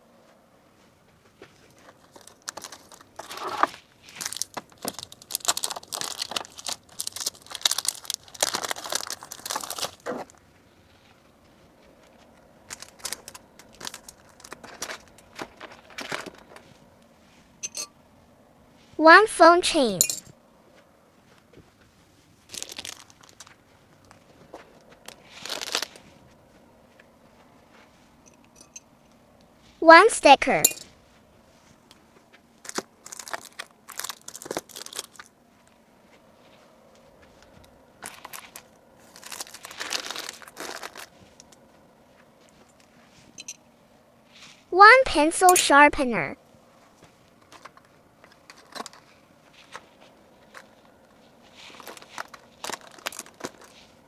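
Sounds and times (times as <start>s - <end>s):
crinkly packaging handled: 1.4s - 17.4s, 22.4s - 26.3s, 31.6s - 35.7s, 37.2s - 41.8s, 46.8s - 54.0s.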